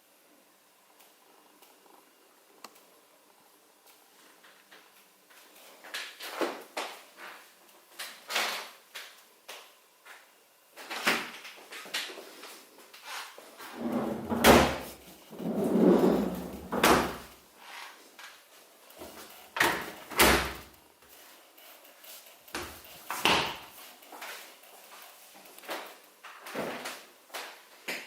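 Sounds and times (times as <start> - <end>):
fridge doors and drawers thumping: 13.8 - 17.3.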